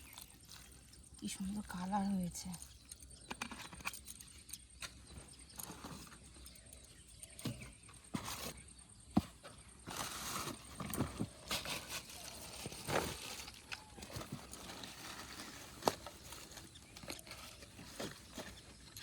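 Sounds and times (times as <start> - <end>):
hands squeezing wet bait mash: 0.0 - 1.3.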